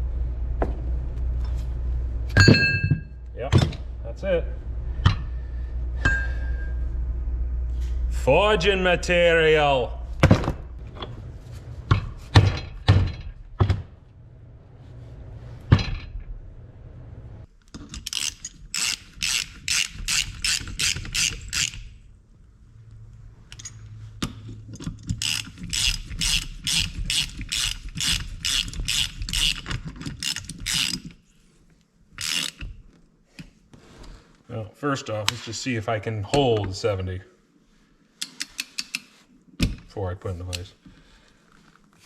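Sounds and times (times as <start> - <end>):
ratchet wrench clicking: 18.0 - 21.9, 25.0 - 31.1, 32.2 - 32.7.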